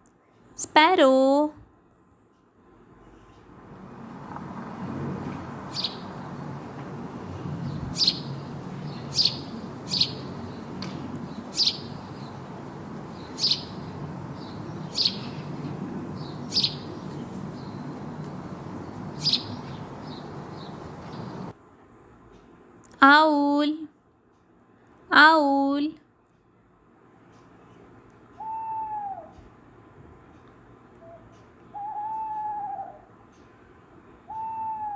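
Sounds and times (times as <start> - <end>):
low background noise: 0.0 - 34.9
sparrow chirping: 5.7 - 6.5, 7.6 - 21.5.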